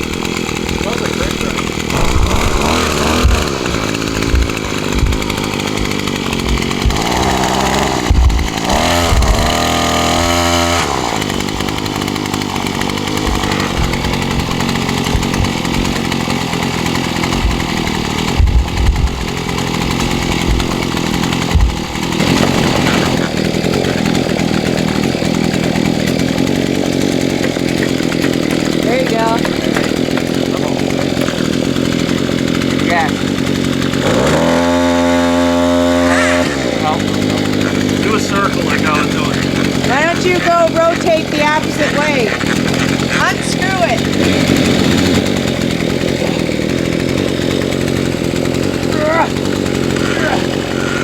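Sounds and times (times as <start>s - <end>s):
post hole auger engine running: 0.0s - 51.0s.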